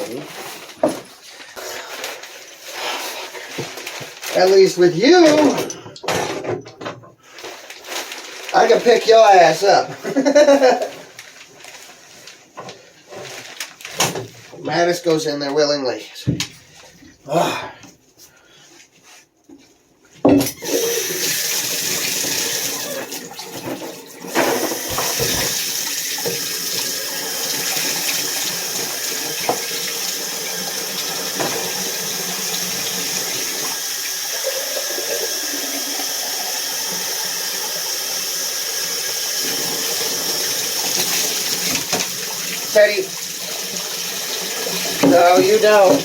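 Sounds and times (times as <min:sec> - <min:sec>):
tap water running: 0:20.5 - 0:46.0.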